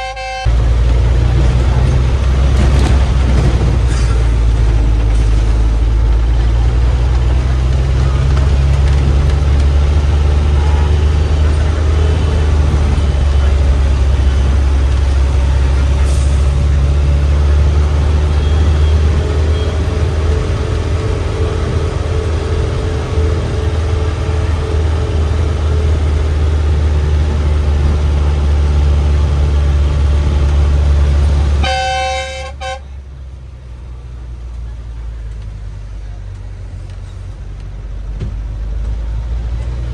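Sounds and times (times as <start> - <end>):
vehicle horn toot: 0.0 - 0.6, 31.6 - 33.0
bus engine rumbling: 0.0 - 39.9.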